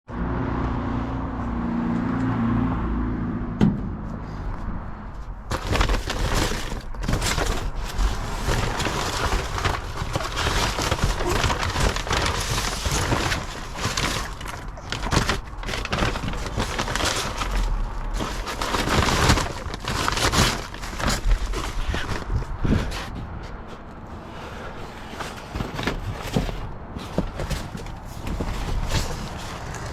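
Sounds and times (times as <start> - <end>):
crackling and rustling: 5.2 - 29.9
sharp crunches and knocks: 5.3 - 24.1, 25.0 - 29.9.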